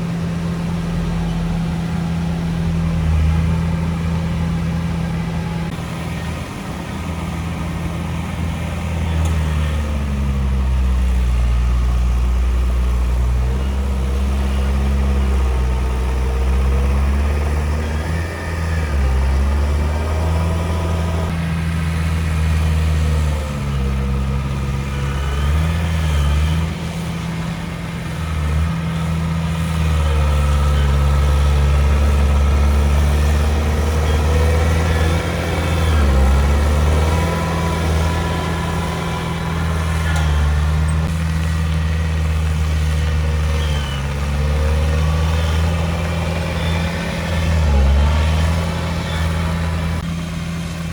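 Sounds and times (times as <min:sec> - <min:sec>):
bulldozer diesel engine droning: 0:00.0 - 0:50.9
faint high squeals: 0:43.4 - 0:49.9.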